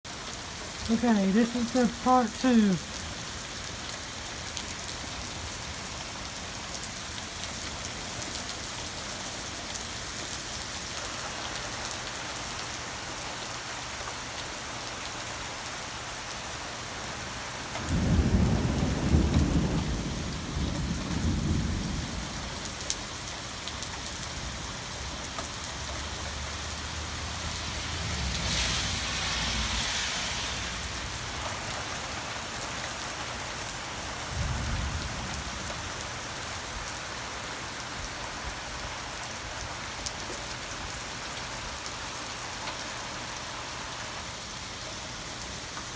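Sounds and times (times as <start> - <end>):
steady rain falling: 0.1 - 45.9
thunder rumbling: 17.8 - 22.8.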